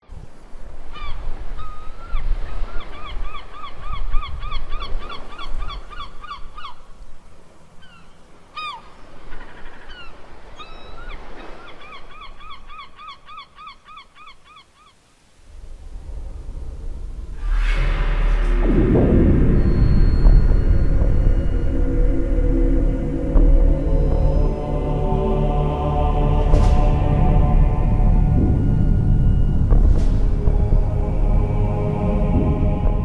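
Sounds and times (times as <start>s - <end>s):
low rumble: 15.5s - 33.0s.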